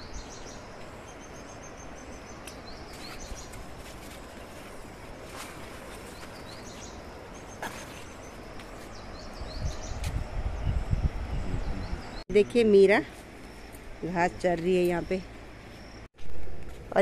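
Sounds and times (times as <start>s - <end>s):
bird chirping: 0.0s - 3.6s, 6.0s - 16.1s
rustling leaves and stems: 0.0s - 11.3s
steady outdoor hiss: 0.0s - 17.0s.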